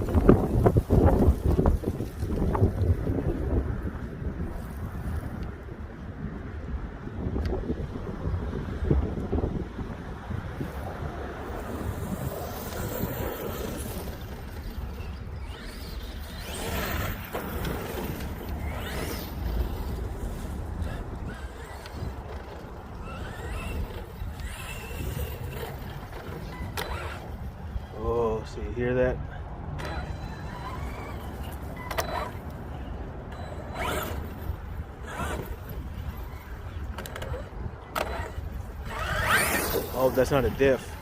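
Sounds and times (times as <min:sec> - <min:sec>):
wind noise on microphone: 0:00.0 - 0:41.0
toy truck drivetrain grinding: 0:11.5 - 0:28.0, 0:29.8 - 0:41.0
electric motor whining: 0:11.6 - 0:27.9, 0:29.8 - 0:41.0.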